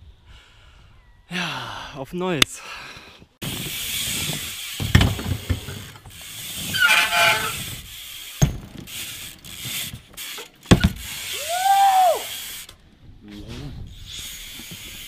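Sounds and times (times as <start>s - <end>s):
bike tyres rolling on ramp: 3.4s - 12.8s, 13.8s - 15.0s.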